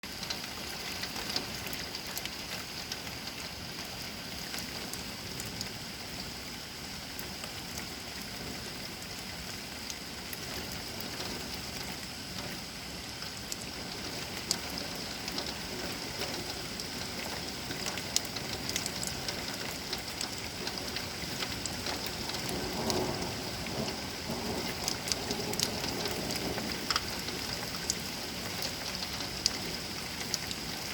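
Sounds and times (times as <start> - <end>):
raindrops ticking and splashing: 0.0 - 30.9
steady rain: 0.0 - 30.9
low rumble of thunder: 21.5 - 29.9.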